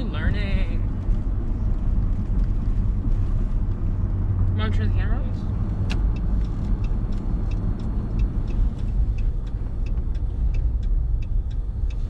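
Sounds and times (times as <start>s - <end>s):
truck road and engine rumble: 0.0s - 12.0s
faint even ticking: 5.6s - 12.0s.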